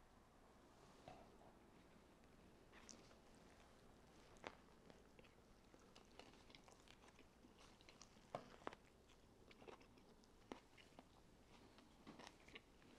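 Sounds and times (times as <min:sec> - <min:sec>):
person chewing: 0:04.3 - 0:12.9.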